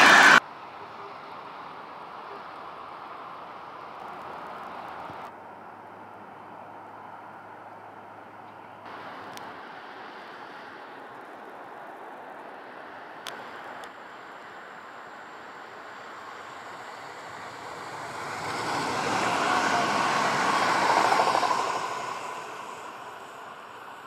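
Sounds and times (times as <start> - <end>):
electric train passing: 0.0 - 0.4, 8.9 - 24.0.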